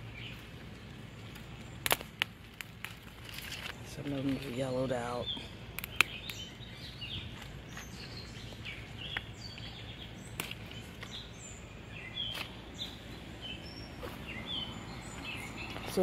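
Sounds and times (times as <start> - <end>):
outdoor background hiss: 0.0 - 16.0
songbirds chirping: 0.0 - 16.0
sharp clicks: 5.8 - 6.4.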